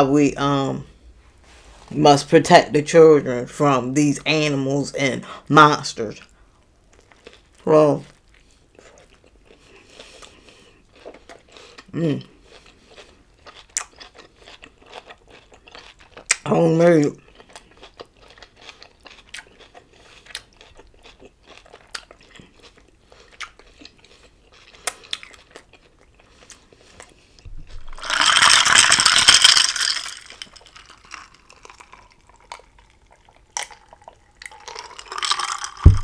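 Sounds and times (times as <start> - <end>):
wet chewing and smacks: 6.9 - 16.5, 17.2 - 28.3, 30.1 - 36.0.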